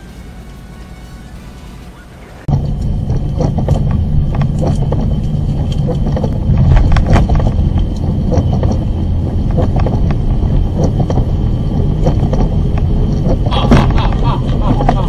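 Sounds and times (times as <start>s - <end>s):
vehicle engine and road rumble: 0.0s - 15.0s
knocks and rattles: 2.5s - 15.0s.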